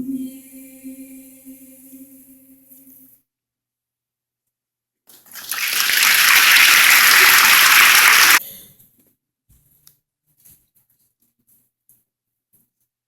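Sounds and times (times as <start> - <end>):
audience applauding: 5.4 - 8.4.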